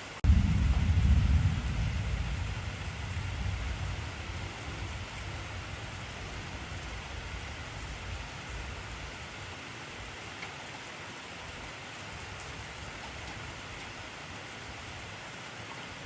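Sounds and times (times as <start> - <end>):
heavy rain: 0.0 - 16.0
thunder rumble: 0.2 - 9.5.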